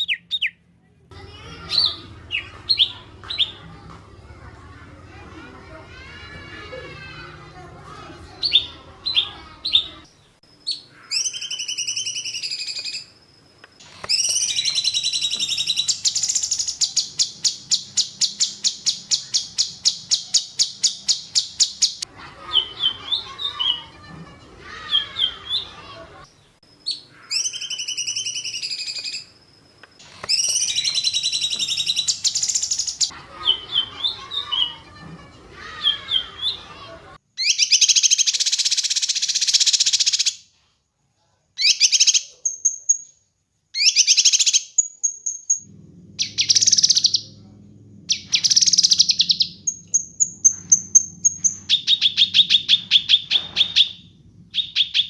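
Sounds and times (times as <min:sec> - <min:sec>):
songbird chirps and whistles: 0:08.4 - 0:13.1, 0:30.2 - 0:40.3, 0:43.8 - 0:45.6, 0:48.1 - 0:55.0.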